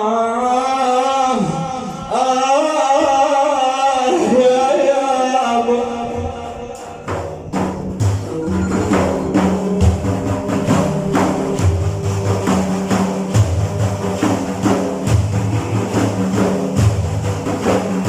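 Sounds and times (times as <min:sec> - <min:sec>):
solo singer: 0:00.0 - 0:16.6
frame drums with jingles: 0:07.0 - 0:18.0.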